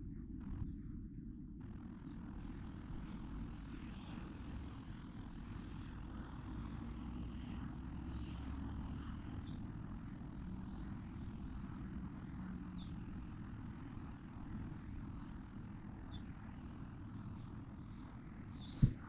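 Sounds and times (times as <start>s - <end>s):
low rumble of traffic: 0.0s - 19.0s.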